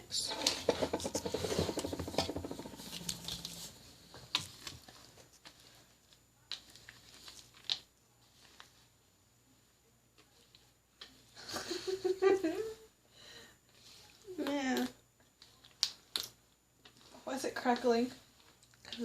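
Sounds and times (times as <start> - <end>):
whisk clicking and scraping in bowl: 0.2 - 3.8.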